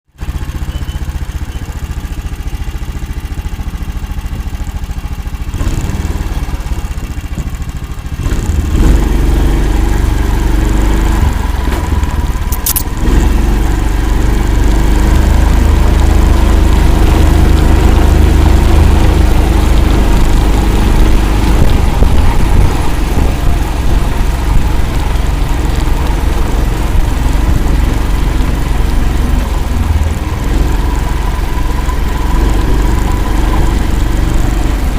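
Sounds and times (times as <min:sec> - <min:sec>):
vehicle engine running: 0:00.1 - 0:34.9
sharp click: 0:12.5 - 0:12.9.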